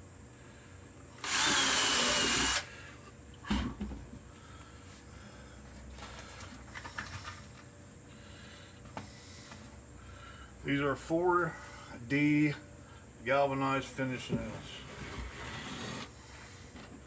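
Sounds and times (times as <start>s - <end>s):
power drill whining: 1.2s - 2.7s
faint handling sounds: 4.3s - 9.9s.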